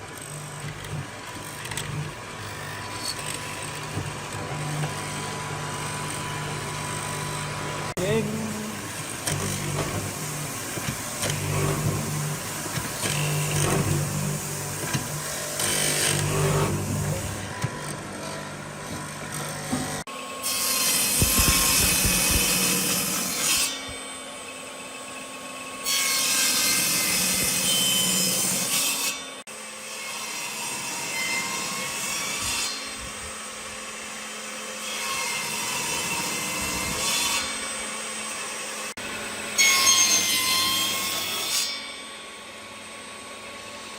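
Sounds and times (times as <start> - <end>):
tools rasping and sawing wood: 0.0 - 24.0.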